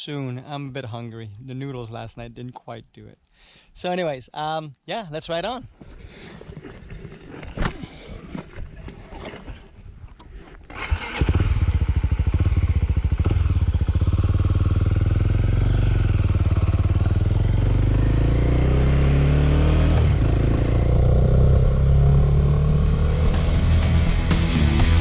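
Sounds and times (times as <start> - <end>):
motorcycle engine starting and running: 10.7 - 25.0.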